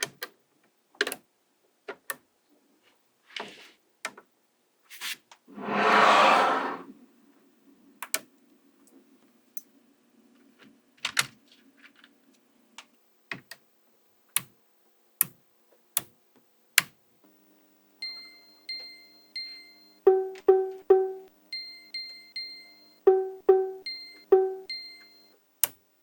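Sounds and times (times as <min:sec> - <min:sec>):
light music with plucked notes: 0:20.1 - 0:21.3, 0:23.1 - 0:24.7.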